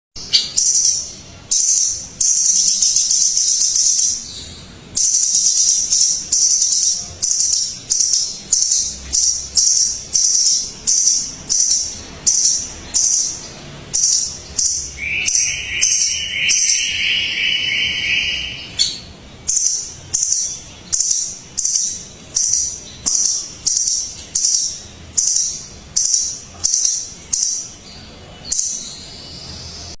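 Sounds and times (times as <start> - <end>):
nuthatches calling high thin notes: 0.2 - 29.5
lower drawn-out bird call: 15.0 - 18.8.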